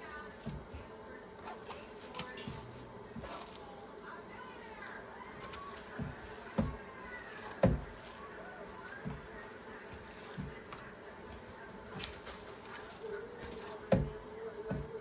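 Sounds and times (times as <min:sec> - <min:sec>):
hands mixing ground meat thumps: 0:00.0 - 0:15.0.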